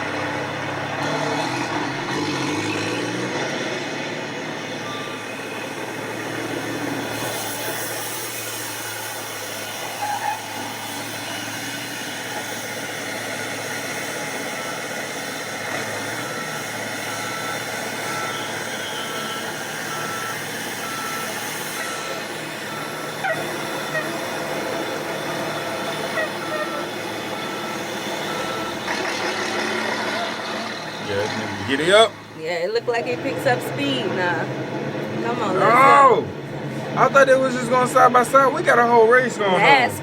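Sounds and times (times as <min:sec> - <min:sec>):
diesel truck engines racing: 0:00.0 - 0:40.0
road noise: 0:00.0 - 0:40.0
short beeps: 0:04.8 - 0:05.8.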